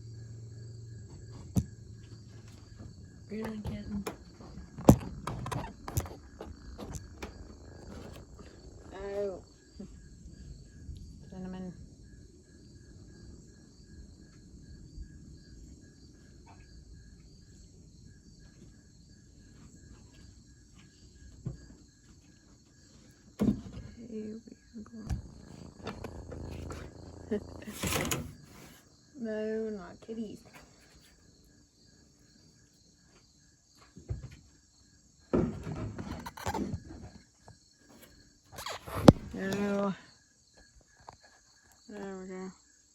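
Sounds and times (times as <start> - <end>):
crickets chirping: 0.0 - 42.9
microphone handling rustling and knocking: 2.4 - 9.2, 25.1 - 28.8, 38.6 - 39.8
low rumbling haze: 25.1 - 28.8.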